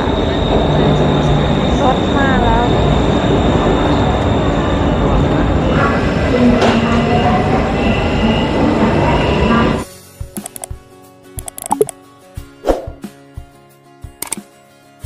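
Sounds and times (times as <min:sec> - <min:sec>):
rising train whine: 0:00.0 - 0:09.8
metro train rumbling past: 0:00.0 - 0:09.9.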